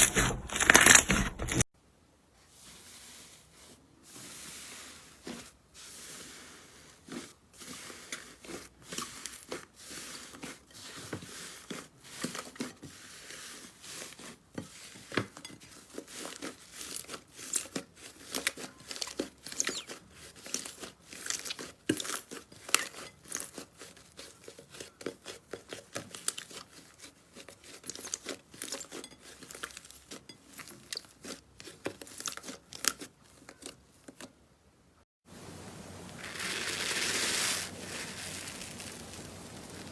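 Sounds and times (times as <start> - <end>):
slime crackling and popping: 36.1 - 39.9.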